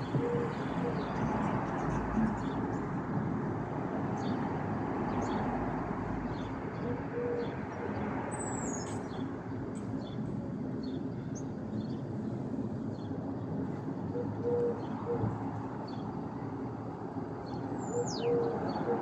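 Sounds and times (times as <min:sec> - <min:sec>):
dove cooing: 0:00.0 - 0:01.3, 0:06.8 - 0:08.0, 0:14.1 - 0:15.3, 0:17.9 - 0:19.0
small birds chirping: 0:05.1 - 0:13.6, 0:17.3 - 0:18.9.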